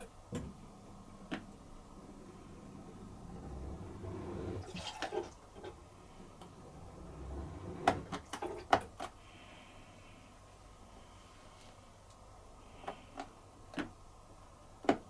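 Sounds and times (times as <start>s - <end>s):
water rushing in dishwasher: 3.3s - 5.8s.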